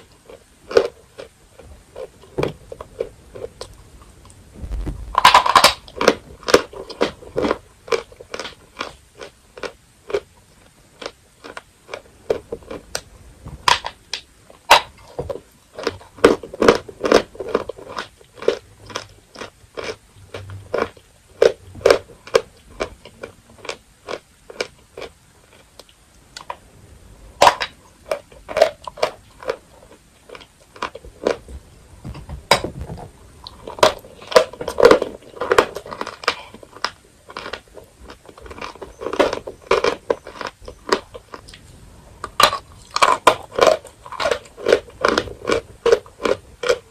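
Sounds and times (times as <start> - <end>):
chalk crunching when chewed: 15.8 - 26.5, 33.4 - 41.6, 42.2 - 46.9.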